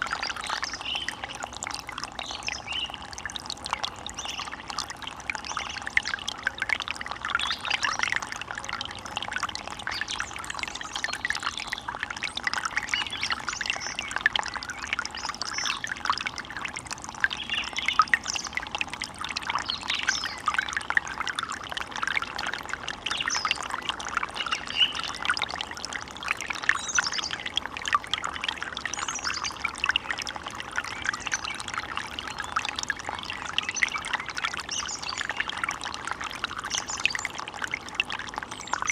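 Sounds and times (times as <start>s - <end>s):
stream gurgling over stones: 0.0s - 38.9s.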